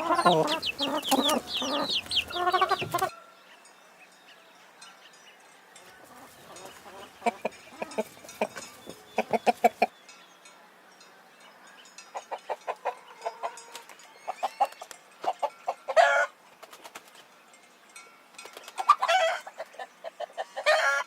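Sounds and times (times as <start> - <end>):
chicken squawking: 0.0 - 3.1
chickens clucking: 0.0 - 3.2, 5.9 - 9.9, 12.1 - 17.2, 18.6 - 21.0.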